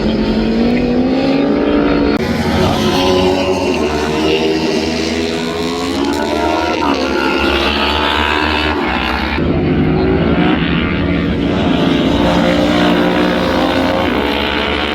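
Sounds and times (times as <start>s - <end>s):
motorbikes passing: 0.0s - 14.9s.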